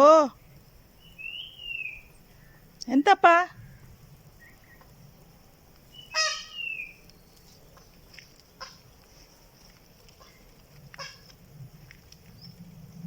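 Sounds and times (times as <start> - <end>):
peacock harsh call: 6.0 - 7.0.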